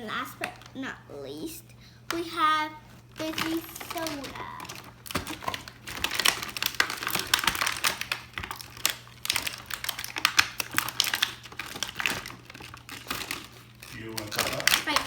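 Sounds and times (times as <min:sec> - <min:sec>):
plastic toys clicking and tapping: 0:03.2 - 0:15.0.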